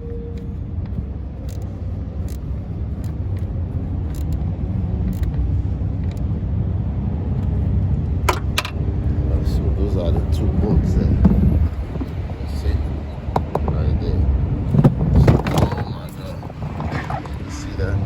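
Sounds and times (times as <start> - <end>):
traffic rumble: 0.0 - 18.0
tools clicking: 1.4 - 4.4, 5.1 - 5.4.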